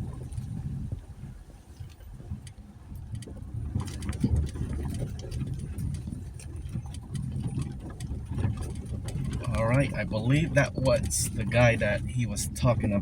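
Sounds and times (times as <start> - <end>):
engine rumble: 0.0 - 13.0
tyres crunching over gravel: 3.2 - 13.0.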